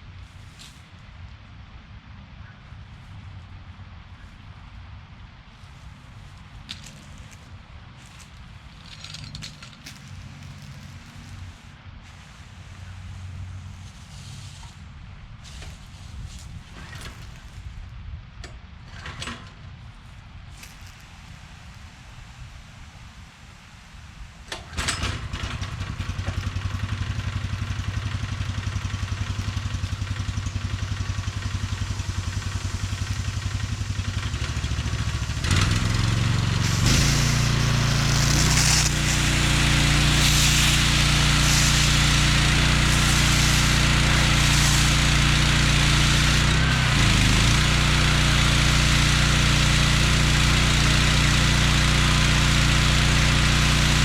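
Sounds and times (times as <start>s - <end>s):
pressure washer engine running: 5.8s - 14.8s, 20.6s - 54.0s
high-pressure water spray hiss: 6.2s - 17.7s, 20.5s - 54.0s.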